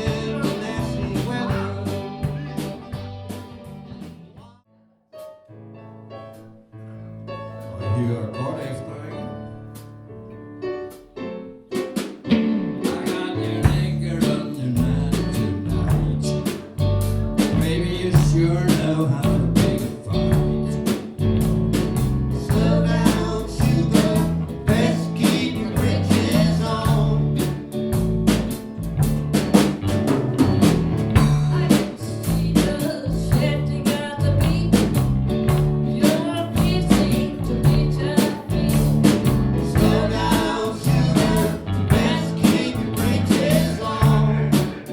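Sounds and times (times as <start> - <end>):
live band playing: 0.0 - 4.4, 10.8 - 44.9.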